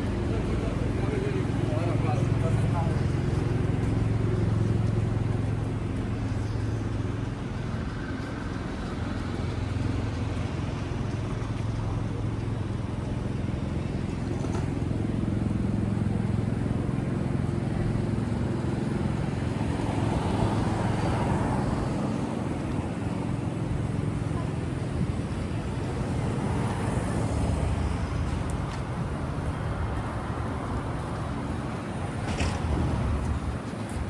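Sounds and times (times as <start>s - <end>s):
general street noise: 0.0s - 34.0s
passing vehicles: 0.0s - 34.0s.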